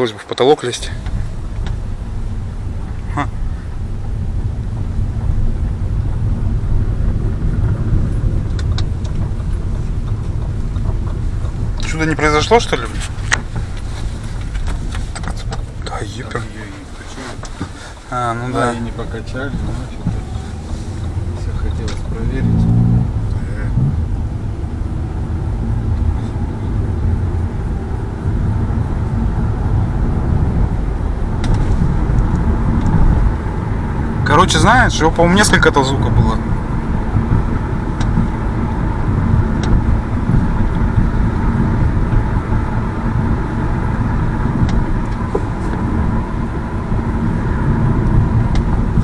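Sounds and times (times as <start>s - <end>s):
car road and engine rumble: 0.0s - 49.0s
car door creaking clicks: 10.0s - 22.2s.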